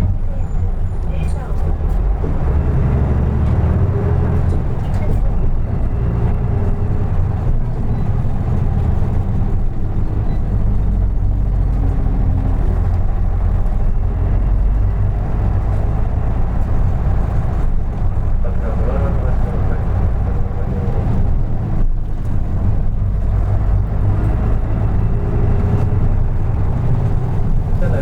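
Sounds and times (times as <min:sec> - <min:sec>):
bus engine drone: 0:00.0 - 0:28.0.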